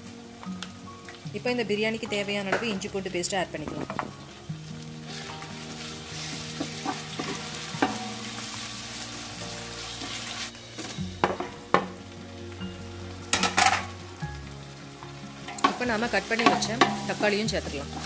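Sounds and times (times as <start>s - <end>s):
food sizzling in hot oil: 0.0s - 18.0s
wooden spatula stirring: 5.1s - 8.0s.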